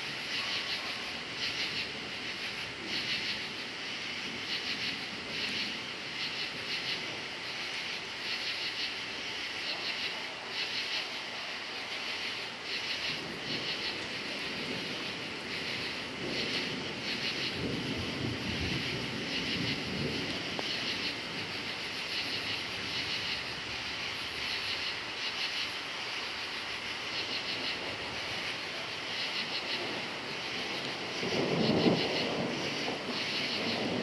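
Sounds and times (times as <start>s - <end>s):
crickets chirping: 0.0s - 34.0s
distant thunder rumble: 12.8s - 24.6s, 27.3s - 34.0s.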